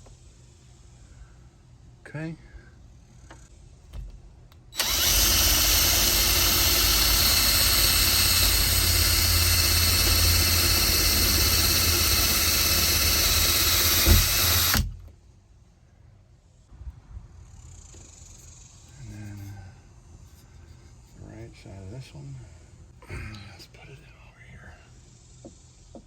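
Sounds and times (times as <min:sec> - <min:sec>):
power drill running: 0:04.8 - 0:15.0.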